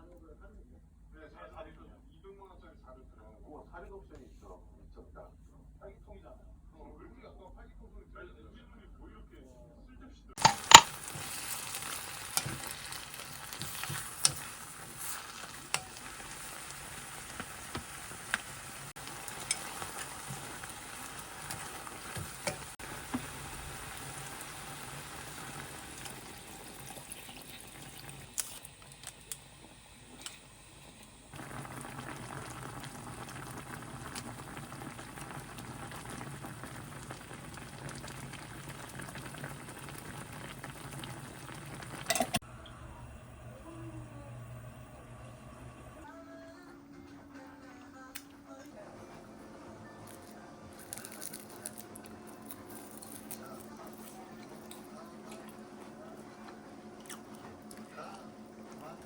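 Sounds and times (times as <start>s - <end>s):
food sizzling in a pan: 10.4s - 46.0s, 50.1s - 56.7s.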